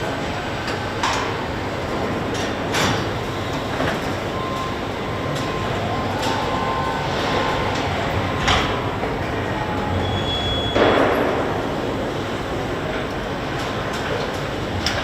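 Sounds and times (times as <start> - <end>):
machinery noise: 0.0 - 15.0.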